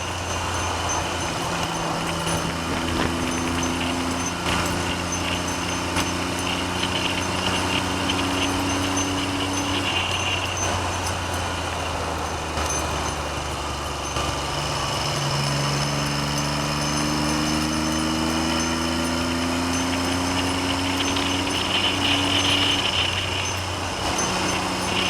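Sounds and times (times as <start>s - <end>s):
wind noise on microphone: 0.0s - 13.9s
motorcycle engine accelerating: 0.0s - 25.0s.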